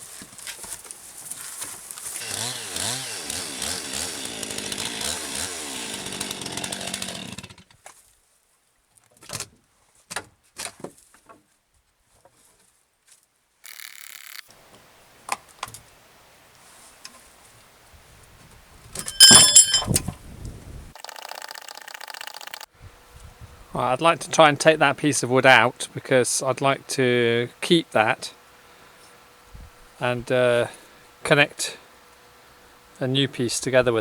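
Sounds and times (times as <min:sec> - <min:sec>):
chainsaw cutting: 0:02.1 - 0:07.7, 0:13.6 - 0:14.5, 0:21.0 - 0:22.7.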